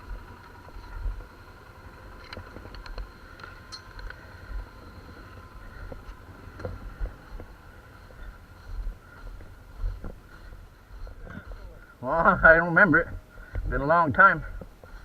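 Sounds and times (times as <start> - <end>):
atv engine running: 0.0 - 15.0
small clicks and rattles: 0.1 - 4.2.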